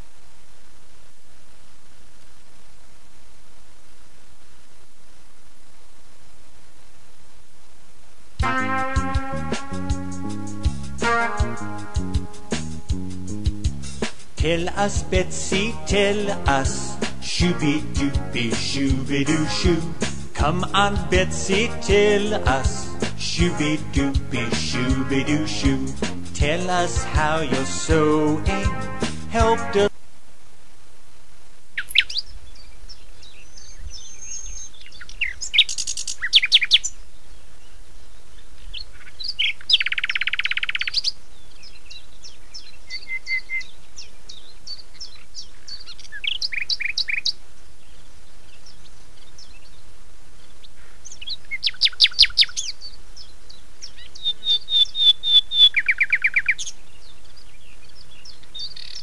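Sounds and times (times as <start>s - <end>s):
songbirds singing: 31.8s - 59.0s.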